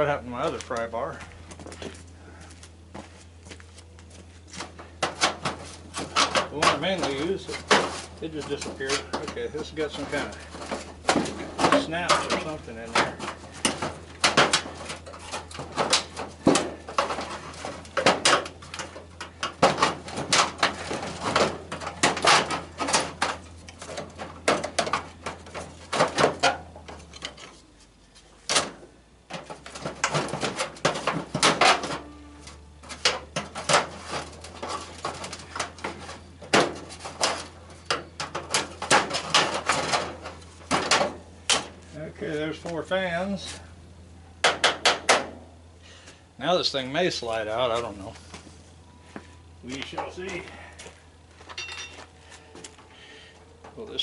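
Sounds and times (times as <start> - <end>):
metal and plastic parts clunking: 4.5 - 43.6.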